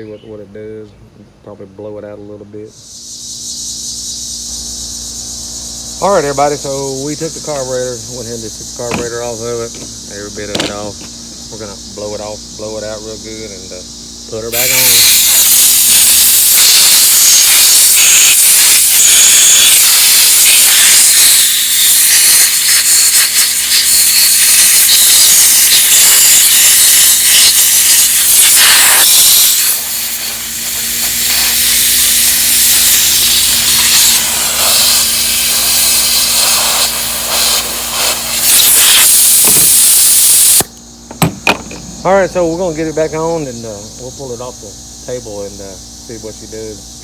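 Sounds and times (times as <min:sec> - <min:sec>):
compressed air gun hissing: 0:02.8 - 0:12.3, 0:14.4 - 0:42.5.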